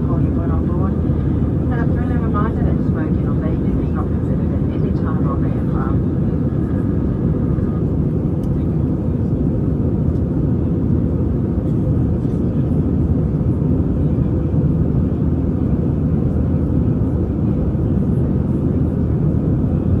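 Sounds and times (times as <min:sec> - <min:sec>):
jet engine rumble in cabin: 0:00.0 - 0:20.0.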